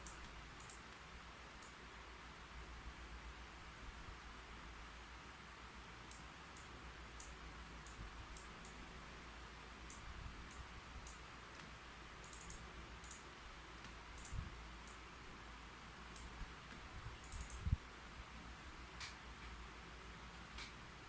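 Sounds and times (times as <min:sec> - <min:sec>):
keyboard typing: 0:09.9 - 0:15.0, 0:17.2 - 0:17.7.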